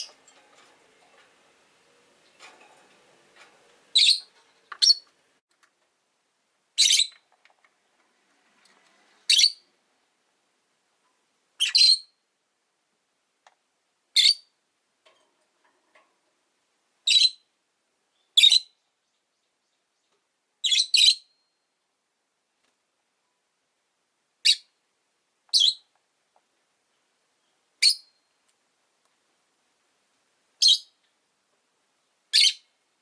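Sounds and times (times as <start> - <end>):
lovebirds high-pitched calls: 3.9 - 5.1, 6.8 - 7.2, 9.2 - 9.7, 11.6 - 12.2, 14.2 - 14.6, 17.0 - 17.5, 18.2 - 21.5, 24.4 - 24.8, 25.5 - 25.9, 27.8 - 28.3, 30.6 - 31.0, 32.3 - 32.7.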